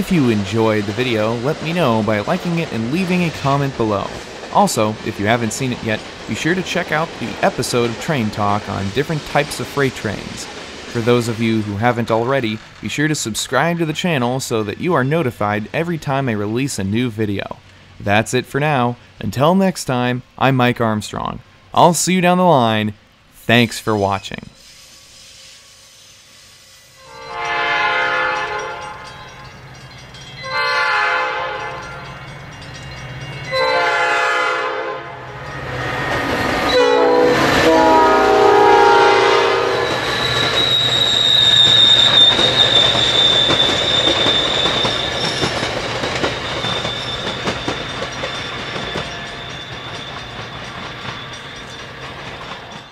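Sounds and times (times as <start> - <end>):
wheels clacking over rail joints: 0.0 - 16.5, 35.4 - 52.9
train horn blasts: 27.0 - 29.1, 30.4 - 32.0, 33.5 - 40.2
high wheel squeal: 35.4 - 52.9.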